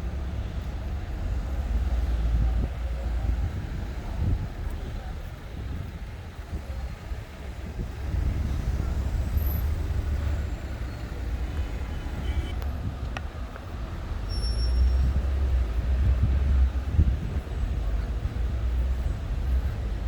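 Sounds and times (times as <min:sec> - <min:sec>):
heavy vehicles passing: 0:00.0 - 0:20.0
street traffic rumble: 0:00.0 - 0:20.0
faint high squeaks: 0:14.3 - 0:15.1.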